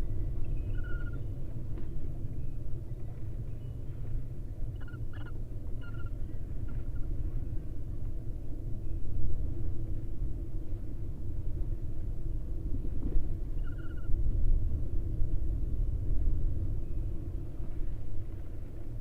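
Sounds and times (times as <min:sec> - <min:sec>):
low outdoor rumble: 0:00.0 - 0:19.0
faint bird chirps: 0:00.4 - 0:01.4, 0:13.6 - 0:14.1.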